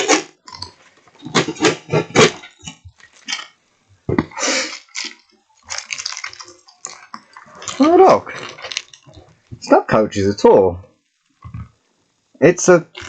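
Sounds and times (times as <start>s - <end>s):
cardboard packaging rustling: 5.0s - 9.5s.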